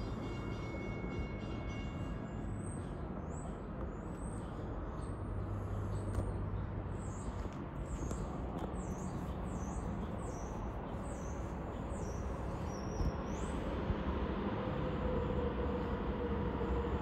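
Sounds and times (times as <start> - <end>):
train rumble: 0.0 - 17.0
birds chirping: 4.0 - 13.8.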